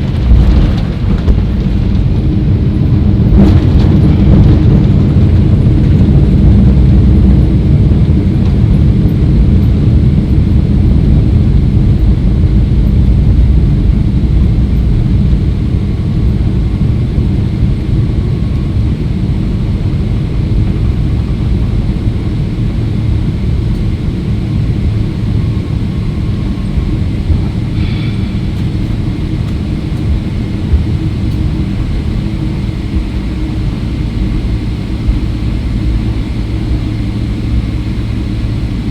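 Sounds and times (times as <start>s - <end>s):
airliner cabin rumble: 0.0s - 38.9s.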